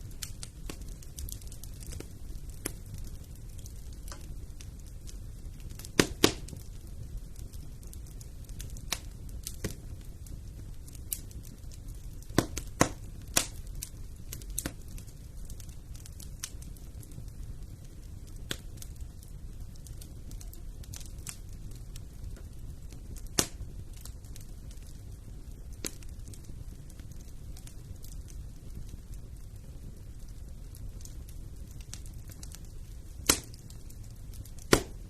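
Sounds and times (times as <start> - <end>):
fire crackles and pops: 0.0 - 35.0
low rumble of flames: 0.0 - 35.0.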